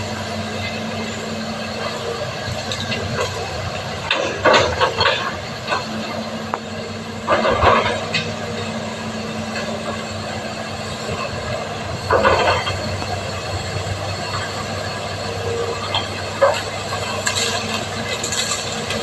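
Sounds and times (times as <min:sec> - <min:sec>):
diesel engine running: 0:00.0 - 0:19.0
loud clatter: 0:11.2 - 0:13.3, 0:15.8 - 0:19.0.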